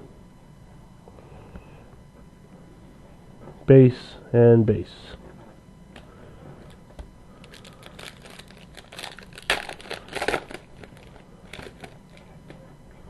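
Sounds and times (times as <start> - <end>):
foil wrapper crinkling: 7.4 - 12.4.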